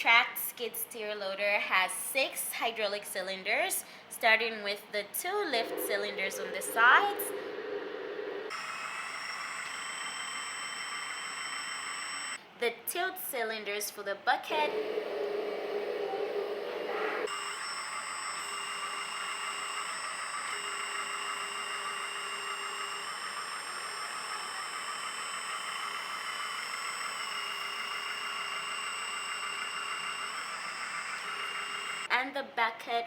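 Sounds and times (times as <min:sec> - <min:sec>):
hydraulic pump electric whine: 0:05.5 - 0:12.4, 0:14.7 - 0:32.1.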